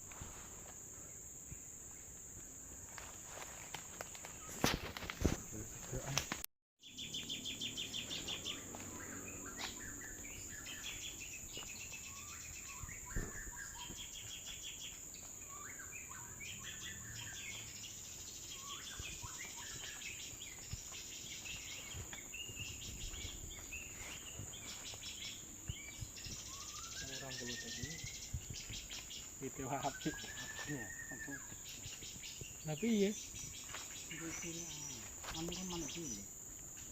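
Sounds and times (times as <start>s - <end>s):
small birds chirping: 0.7s - 36.9s.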